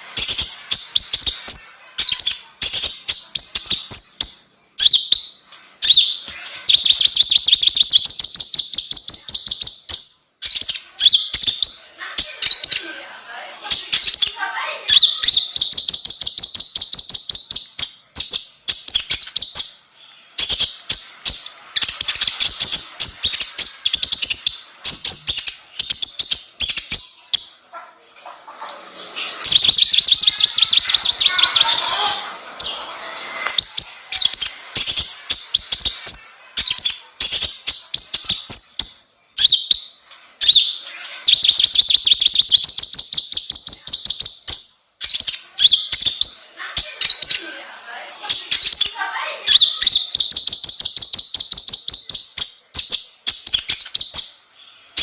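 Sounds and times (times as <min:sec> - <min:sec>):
bird singing fast trills: 0:29.5 - 0:32.9, 0:33.6 - 0:47.4.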